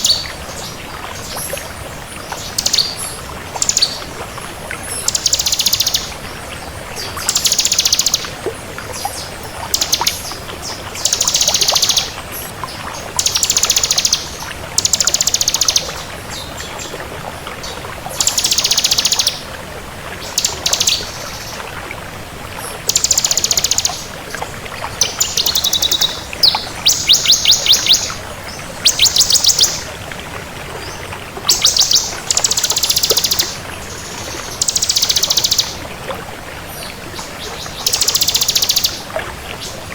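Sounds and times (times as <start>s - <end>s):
bird singing high trills: 25.2s - 28.2s.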